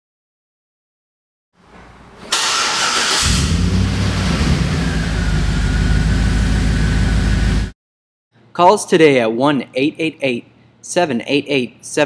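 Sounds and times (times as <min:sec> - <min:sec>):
engine cranking: 0:02.3 - 0:04.6
engine running with low rumble: 0:03.2 - 0:07.7.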